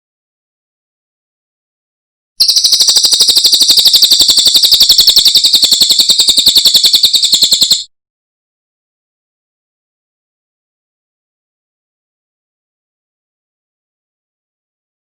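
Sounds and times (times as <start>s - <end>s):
songbird high trill: 2.4s - 7.8s.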